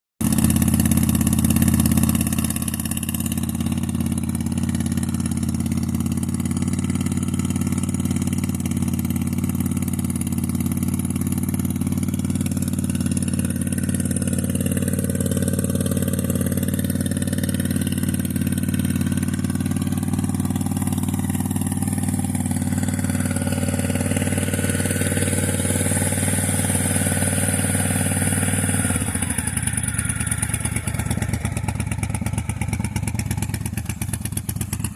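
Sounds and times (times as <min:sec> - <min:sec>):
motorcycle engine idling: 0:00.2 - 0:34.9.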